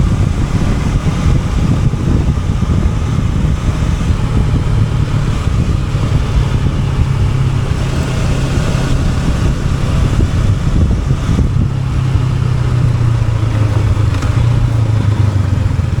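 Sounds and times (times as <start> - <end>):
motorcycle engine running low: 0.0 - 16.0.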